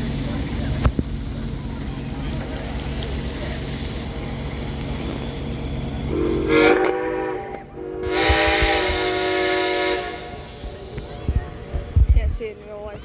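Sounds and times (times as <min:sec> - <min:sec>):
steam whistle blasts: 0:06.1 - 0:11.0.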